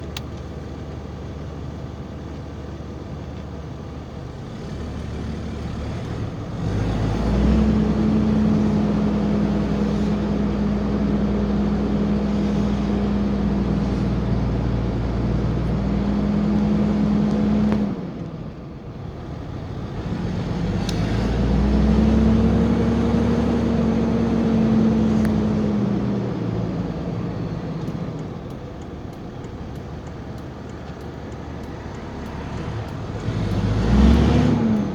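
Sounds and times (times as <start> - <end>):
diesel engine under throttle: 0.0 - 34.9.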